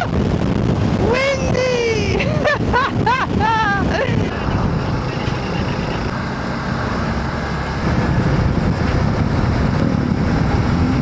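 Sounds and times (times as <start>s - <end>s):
wind rush on microphone: 0.0s - 11.0s
motorcycle engine running: 4.3s - 11.0s.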